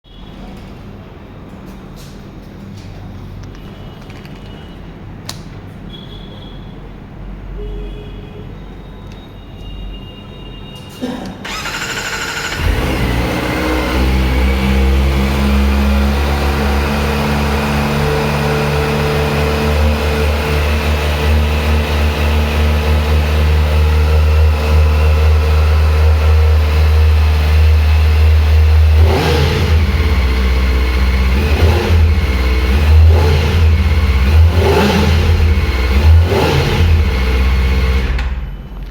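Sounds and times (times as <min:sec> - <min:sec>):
engine throttle blips: 0:11.4 - 0:38.9
motorcycle engine starting and idling: 0:11.4 - 0:38.9.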